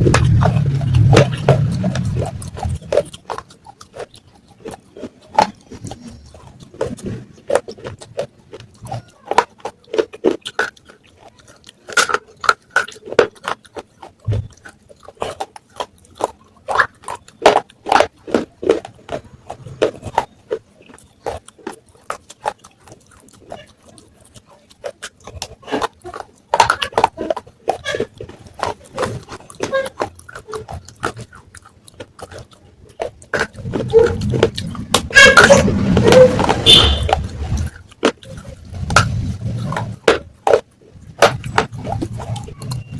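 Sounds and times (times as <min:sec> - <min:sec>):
baked clay crunched and chewed: 0:00.0 - 0:42.9.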